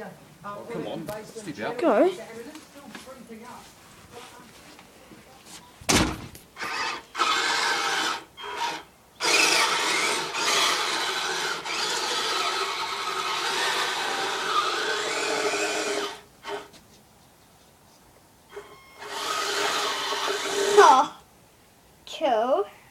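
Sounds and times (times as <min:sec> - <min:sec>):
toy vehicle electric motor whirring: 0:06.6 - 0:16.8, 0:18.5 - 0:21.2.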